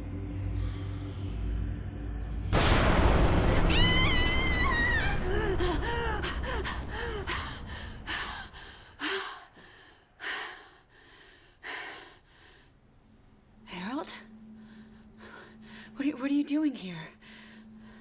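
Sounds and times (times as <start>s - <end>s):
low rumble: 0.0s - 9.0s
heavy breathing: 5.3s - 12.9s.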